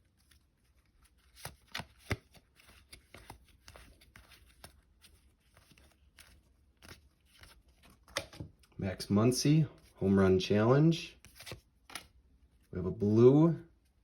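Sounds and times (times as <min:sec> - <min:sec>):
paper rustling: 0:00.0 - 0:08.4, 0:11.2 - 0:12.1
paper cards sliding and flicking: 0:01.0 - 0:08.4, 0:11.2 - 0:12.1
cards snapping: 0:01.1 - 0:04.8, 0:05.5 - 0:08.6, 0:11.2 - 0:12.2.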